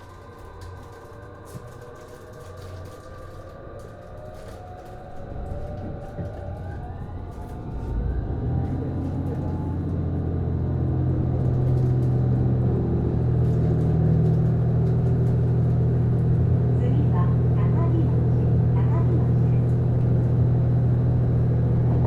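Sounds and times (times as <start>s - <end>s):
train running rumble: 3.9s - 22.0s
traction motor whine: 5.2s - 22.0s
deep diesel engine drone: 5.3s - 22.0s.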